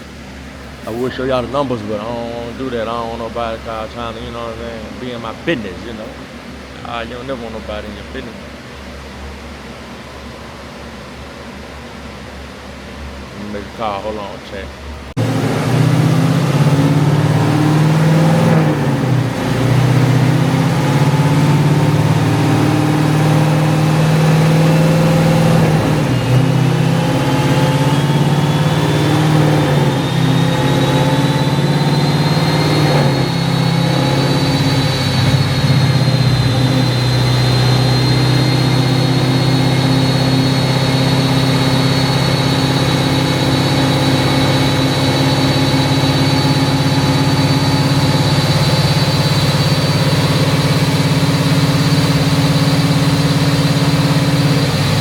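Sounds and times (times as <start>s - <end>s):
car engine idling: 0.0s - 9.8s, 13.0s - 55.0s
faint high whine: 0.0s - 15.2s.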